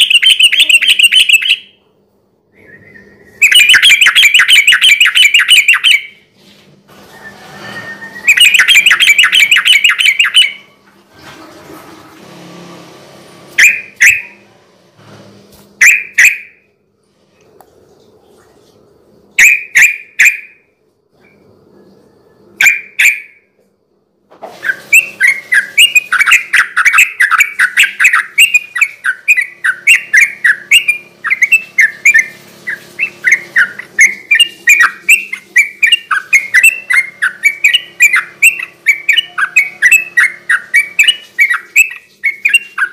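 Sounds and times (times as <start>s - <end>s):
bird singing chattering notes: 0.0s - 1.7s, 3.4s - 6.2s, 8.3s - 10.6s, 25.0s - 42.9s.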